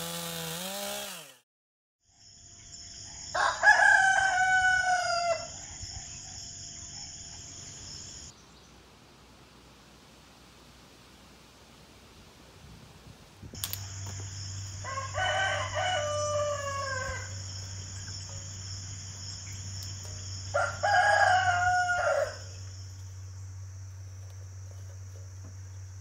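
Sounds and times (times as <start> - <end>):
insect drone: 2.0 - 8.4, 13.5 - 26.0
rooster crowing: 3.3 - 5.6, 14.3 - 17.6, 20.4 - 22.6
low steady hum: 17.1 - 26.0.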